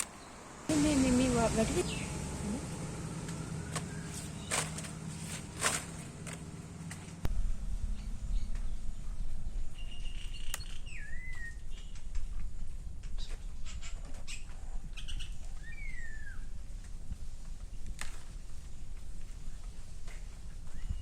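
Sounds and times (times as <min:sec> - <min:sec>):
leaves snapping and rustling: 0:00.0 - 0:00.2, 0:03.2 - 0:07.2, 0:17.7 - 0:18.6
wild bird whistling call: 0:03.4 - 0:04.8, 0:13.6 - 0:16.5.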